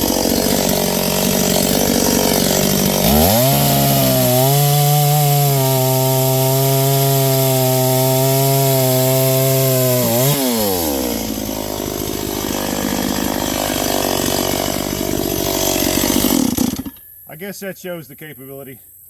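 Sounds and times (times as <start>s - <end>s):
two-stroke chainsaw revving: 0.0s - 17.0s.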